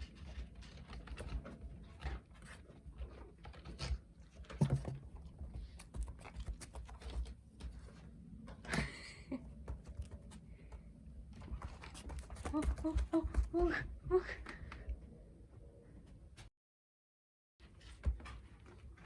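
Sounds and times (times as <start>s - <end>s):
paw taps and patters: 0.0s - 8.1s, 9.5s - 13.9s.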